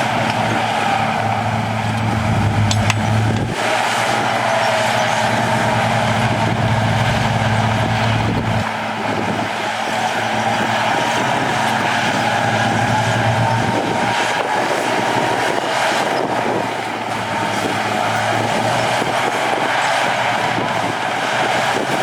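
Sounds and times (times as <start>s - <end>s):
diesel machinery running under load: 0.0s - 22.0s
high machine whine: 0.5s - 16.8s.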